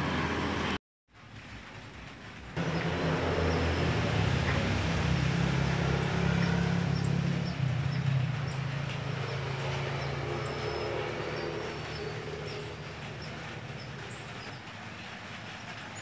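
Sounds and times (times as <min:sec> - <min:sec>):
car engine humming: 0:02.6 - 0:14.5.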